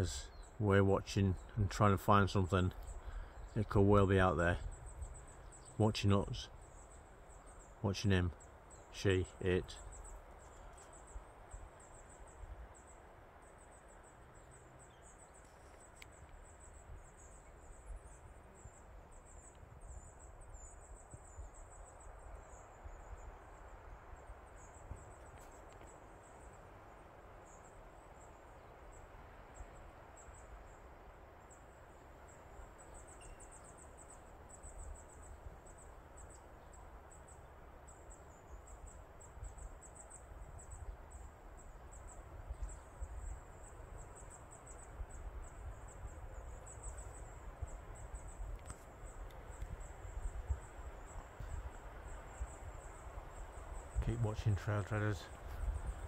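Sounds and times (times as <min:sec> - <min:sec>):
insects chirping: 0:00.0 - 0:56.0
wind on microphone: 0:55.4 - 0:56.0.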